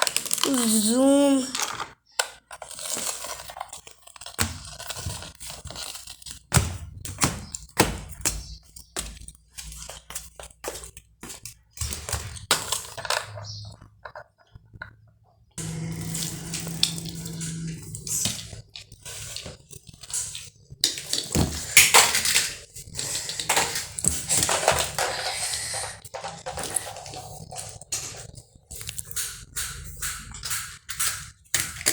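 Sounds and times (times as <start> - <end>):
plastic toys knocking and scraping: 0.0 - 31.9
steady low hum: 15.6 - 18.6.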